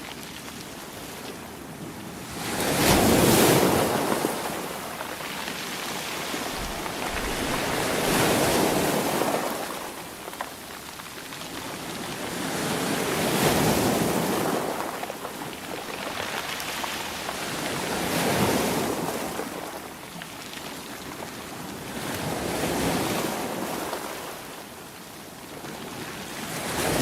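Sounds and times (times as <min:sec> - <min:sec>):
sea waves breaking: 0:02.2 - 0:10.7.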